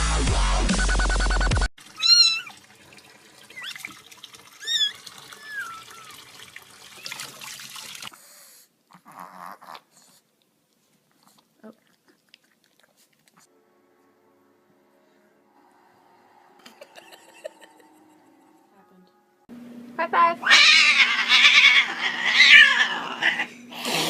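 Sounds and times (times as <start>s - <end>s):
dubstep music: 0.0s - 1.7s
cat meowing: 2.0s - 2.6s, 4.6s - 6.2s, 20.4s - 23.5s.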